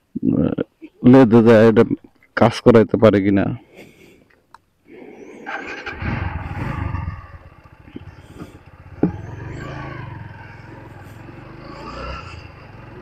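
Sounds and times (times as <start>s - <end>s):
motorcycle engine revving: 5.5s - 13.0s.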